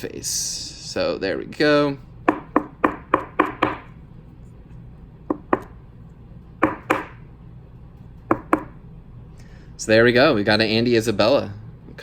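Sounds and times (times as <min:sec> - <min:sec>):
sharp knocks on hard surface: 0:02.3 - 0:03.9, 0:05.3 - 0:05.7, 0:06.6 - 0:07.2, 0:08.3 - 0:08.8.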